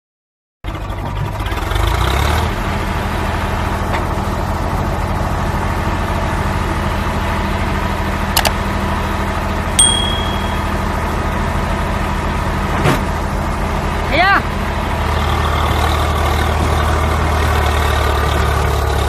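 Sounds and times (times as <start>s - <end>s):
diesel engine idling: 10.7s - 19.0s.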